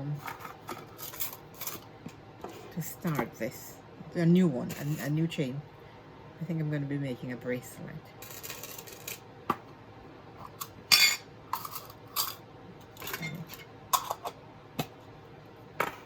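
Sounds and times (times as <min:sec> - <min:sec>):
small metal parts clinking: 0:08.2 - 0:09.2, 0:10.9 - 0:12.4.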